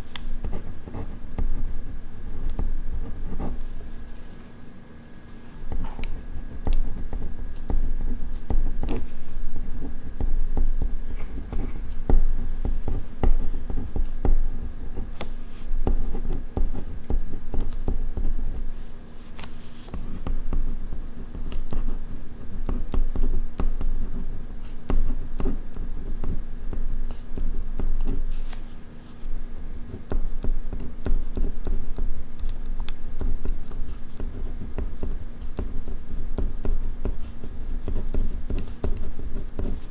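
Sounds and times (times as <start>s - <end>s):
pen scratching on paper: 0.4s - 1.6s, 2.4s - 4.5s, 5.5s - 20.6s, 36.4s - 39.9s.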